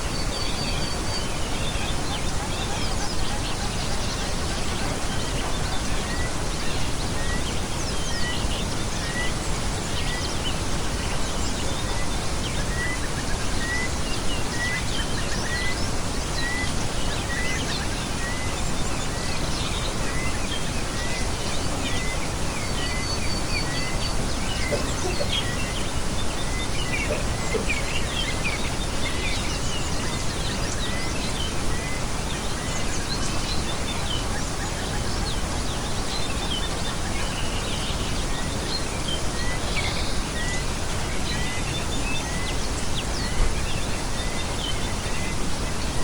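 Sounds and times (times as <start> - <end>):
small birds chirping: 0.0 - 46.0
steady background hiss: 0.0 - 46.0
bird trill: 12.7 - 35.5.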